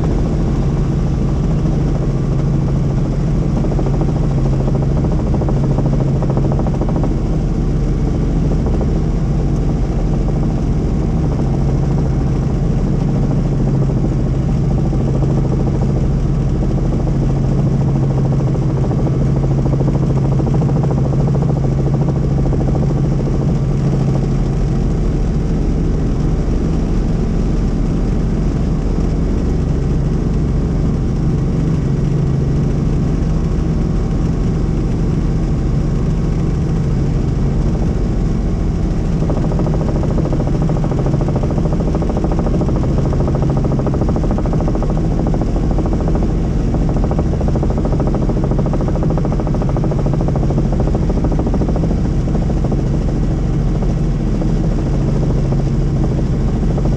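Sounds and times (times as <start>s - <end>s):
helicopter engine and rotor: 0.0s - 56.9s.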